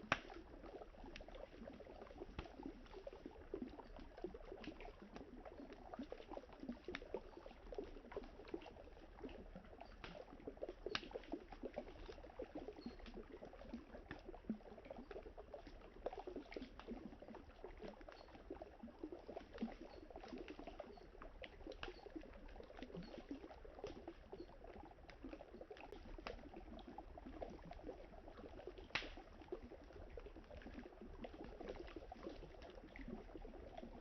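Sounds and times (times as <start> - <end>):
campfire crackling and popping: 0.0 - 14.8, 21.5 - 32.1.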